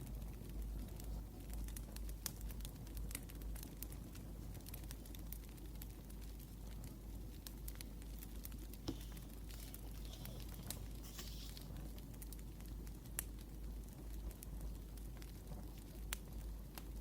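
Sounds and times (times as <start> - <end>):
wood fire crackling: 0.0 - 17.0
pen writing on paper: 8.9 - 11.6.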